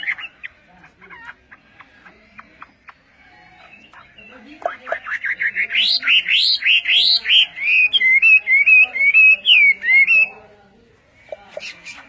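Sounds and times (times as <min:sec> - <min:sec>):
bird singing whistled notes: 0:05.0 - 0:10.4.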